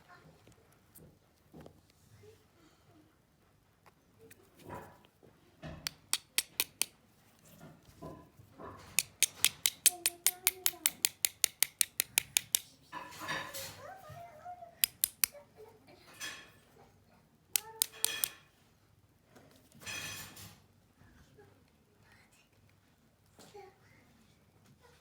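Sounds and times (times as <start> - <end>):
lighter metallic clicks: 14.8 - 15.3.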